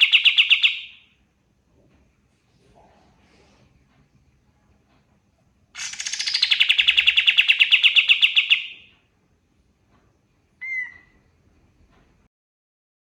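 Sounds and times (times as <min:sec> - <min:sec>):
bird rapid trill: 0:00.0 - 0:01.0, 0:05.8 - 0:08.9.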